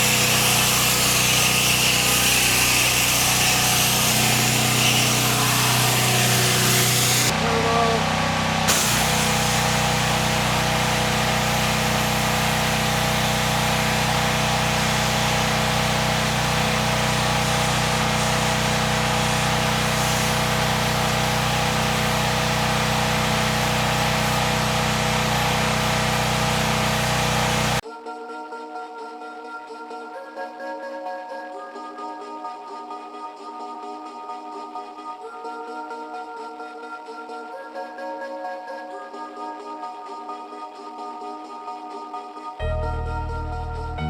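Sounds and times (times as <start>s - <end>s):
pressure washer engine drone: 0.0s - 27.8s, 42.6s - 44.0s
water jet spraying: 0.0s - 27.8s.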